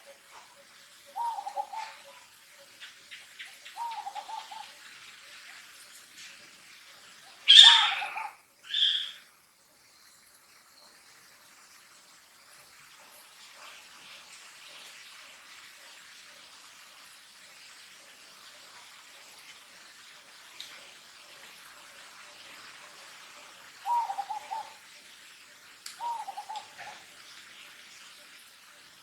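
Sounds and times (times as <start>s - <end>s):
wavering cooing calls: 0.0s - 4.9s, 7.3s - 9.3s, 23.7s - 24.9s, 26.0s - 27.1s
faint insect hiss: 0.0s - 29.0s.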